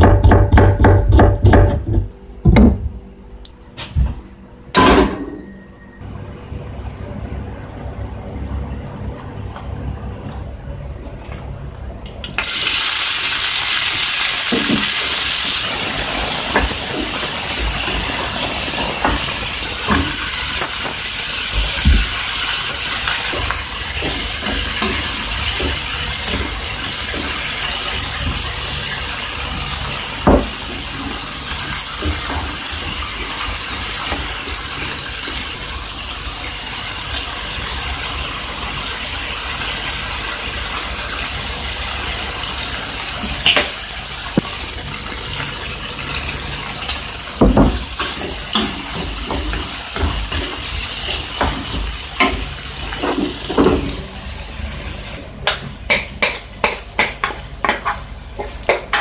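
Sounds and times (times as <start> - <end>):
food sizzling in a frying pan: 12.4 - 59.0.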